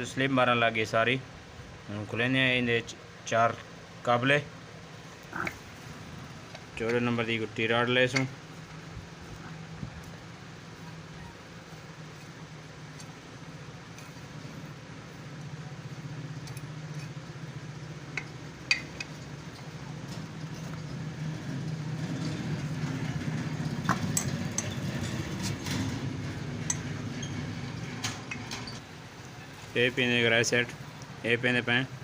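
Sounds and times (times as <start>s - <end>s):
low engine hum: 8.3s - 29.7s.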